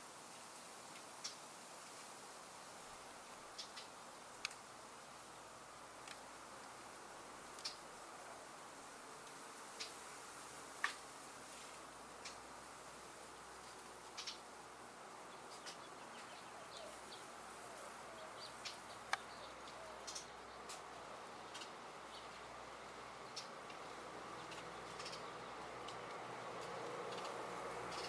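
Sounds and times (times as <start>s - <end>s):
bird chirps: 14.1s - 14.5s, 15.3s - 20.7s, 23.2s - 23.6s, 24.3s - 26.1s, 27.1s - 28.0s.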